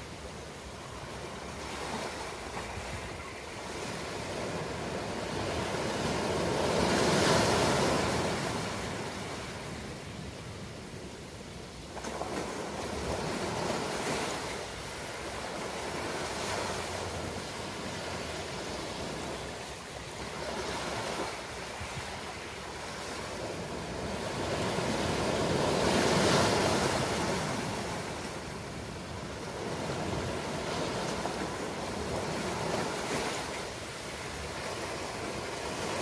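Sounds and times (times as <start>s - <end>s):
waves breaking on shore: 0.0s - 36.0s.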